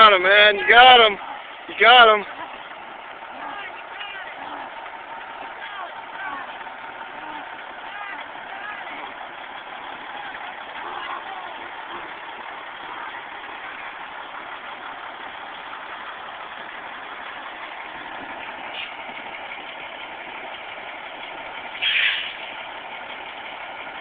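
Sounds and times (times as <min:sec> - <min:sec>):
truck diesel engines idling: 0:00.0 - 0:24.0
loud engine burst: 0:21.8 - 0:22.6.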